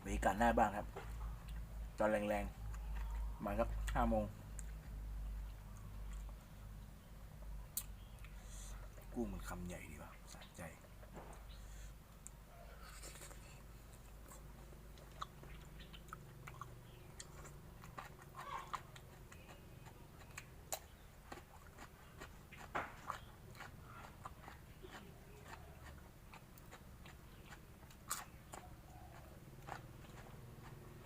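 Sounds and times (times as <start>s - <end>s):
person chewing wetly: 2.6s - 6.8s, 12.2s - 31.0s.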